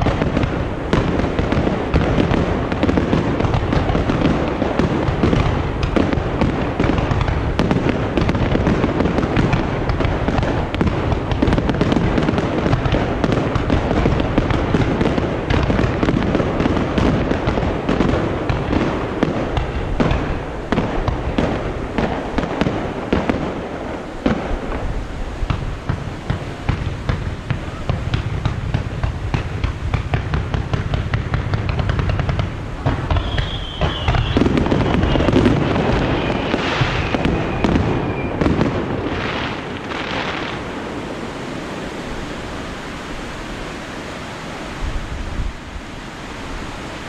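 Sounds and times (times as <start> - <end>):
fireworks bursts and crackling: 0.0 - 43.0.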